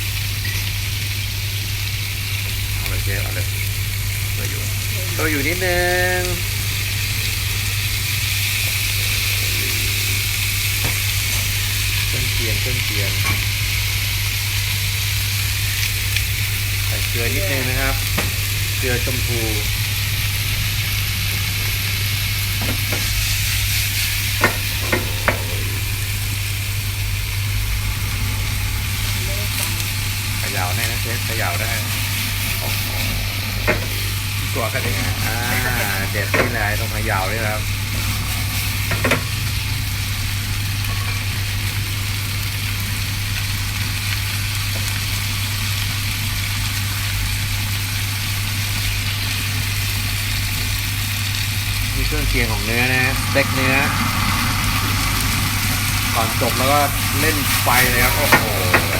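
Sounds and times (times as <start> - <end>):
vegetables sizzling in a frying pan: 0.0 - 58.9
low hum: 15.7 - 41.0, 50.4 - 58.9.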